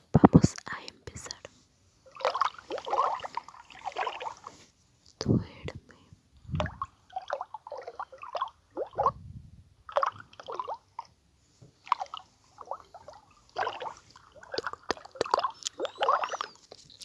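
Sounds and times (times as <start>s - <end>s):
water drop plops and gurgles: 6.5s - 9.2s, 11.9s - 16.5s.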